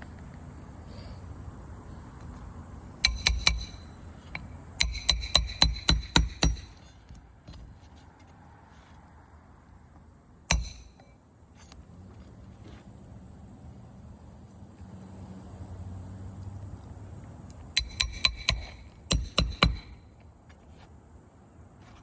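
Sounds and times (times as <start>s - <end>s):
hammer driving nails: 3.0s - 7.6s, 10.5s - 11.1s, 17.8s - 20.1s.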